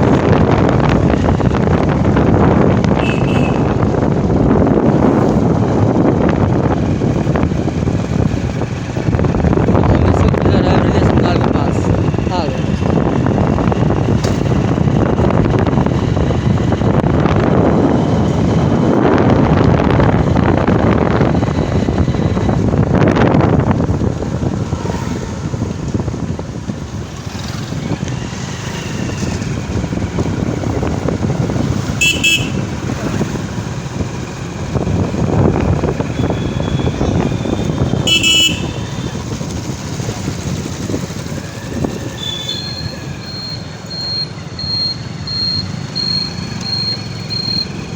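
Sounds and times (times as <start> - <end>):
road traffic: 0.0 - 47.9
wind noise: 0.0 - 47.9
horn toots: 2.9 - 3.8, 31.8 - 33.0, 36.2 - 39.0.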